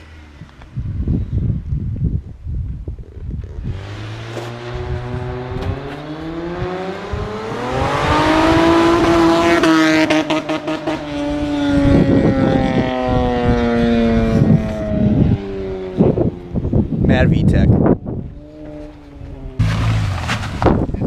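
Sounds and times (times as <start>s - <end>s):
car engine accelerating past: 3.6s - 16.2s.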